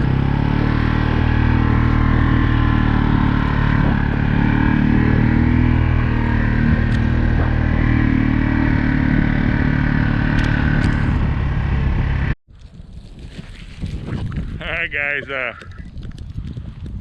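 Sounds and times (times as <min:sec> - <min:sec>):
vehicle engine running: 0:00.0 - 0:12.4.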